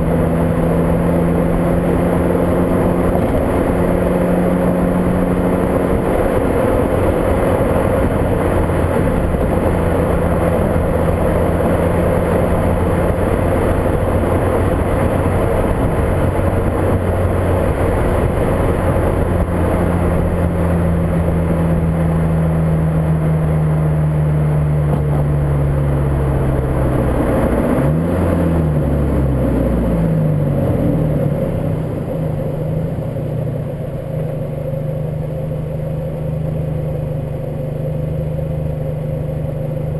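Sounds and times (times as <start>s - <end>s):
wind noise on microphone: 0.0s - 23.8s
car engine running: 0.0s - 39.9s.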